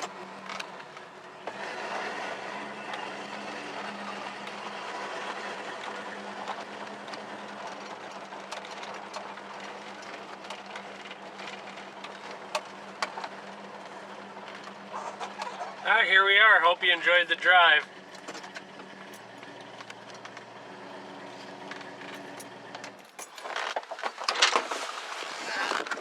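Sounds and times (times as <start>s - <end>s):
car engine hum: 0.0s - 23.8s
road noise: 0.0s - 25.2s
clicks and rattles: 21.6s - 24.4s.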